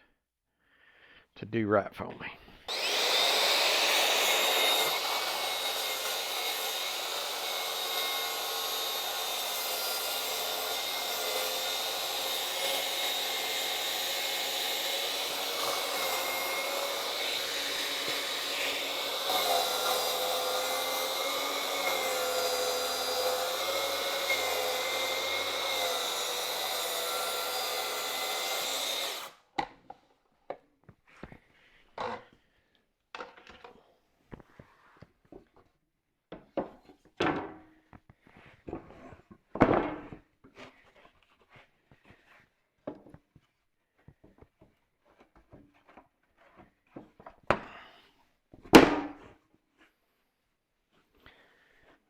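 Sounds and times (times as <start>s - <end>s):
saw motor whine cutting plywood: 2.7s - 29.3s.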